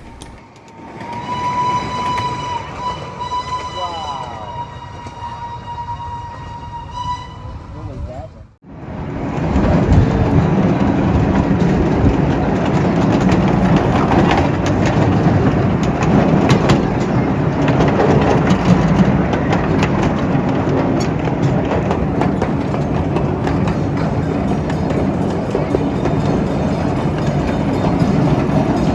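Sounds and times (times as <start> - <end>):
track clicks and clacks: 0.0 - 5.3, 9.1 - 28.9
train wheels running on rails: 0.0 - 7.7, 8.6 - 28.9.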